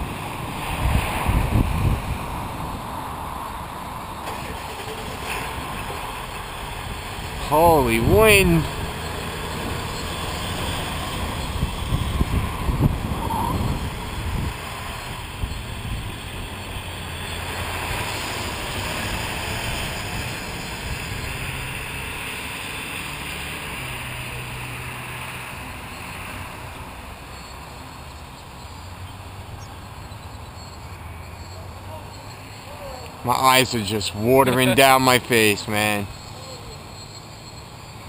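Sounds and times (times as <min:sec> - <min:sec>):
strong wind buffeting microphone: 0:00.0 - 0:04.6, 0:10.5 - 0:16.9
quadcopter motors whirring: 0:10.5 - 0:16.8.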